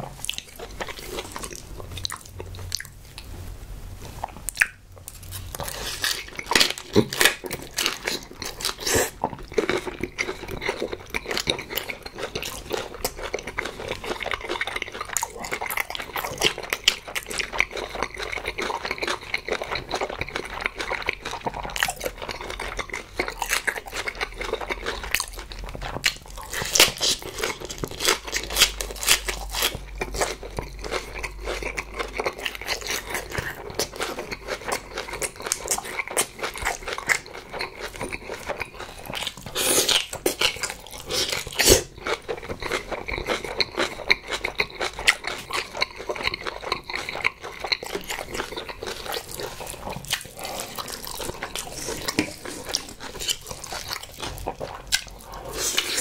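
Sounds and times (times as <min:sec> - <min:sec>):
close chewing: 0:00.0 - 0:03.3, 0:04.1 - 0:56.0
wet crunching of cabbage leaves: 0:23.4 - 0:56.0.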